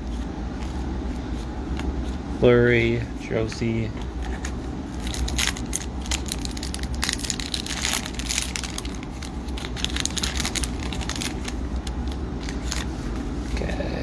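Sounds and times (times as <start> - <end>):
cards being handled: 0.0 - 13.7
steady low hum: 0.0 - 14.0
wrapper crinkling and tearing: 4.2 - 13.0.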